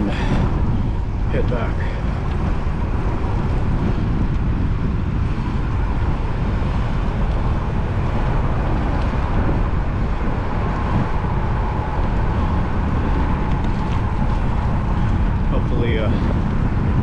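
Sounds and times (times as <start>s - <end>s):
faint steady whine: 0.0s - 17.0s
road and traffic noise: 0.0s - 17.0s
wind rushing over microphone: 0.0s - 17.0s.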